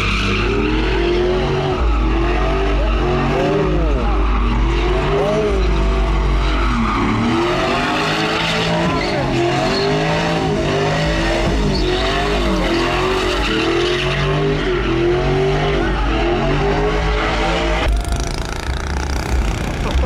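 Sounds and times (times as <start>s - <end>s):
truck engine revving: 0.0s - 20.0s.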